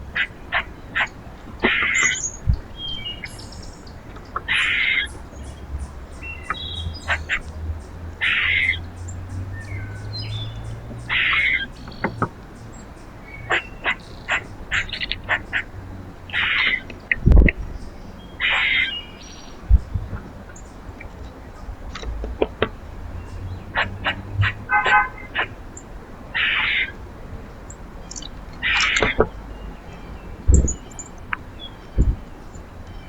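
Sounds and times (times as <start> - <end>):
harsh bird call: 8.2 - 8.8, 11.1 - 12.1, 18.4 - 19.2, 26.3 - 27.0, 28.1 - 30.0
short sharp bird chips: 28.1 - 29.4.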